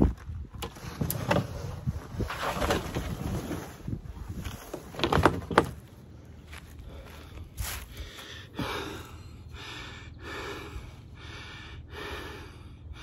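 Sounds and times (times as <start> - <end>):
man panting: 6.7 - 13.0.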